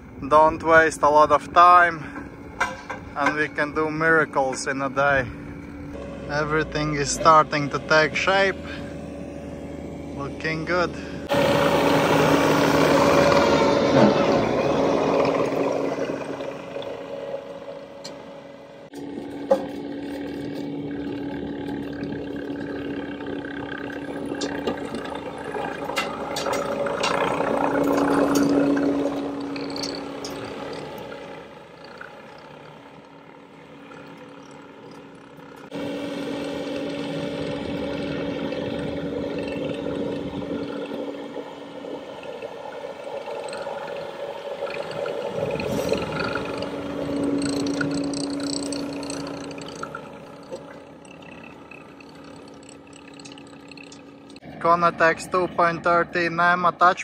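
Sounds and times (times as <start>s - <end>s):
engine and rotor drone: 0.0s - 57.0s
rotor head grinding rocky soil: 44.8s - 54.4s
small clicks: 47.4s - 54.4s.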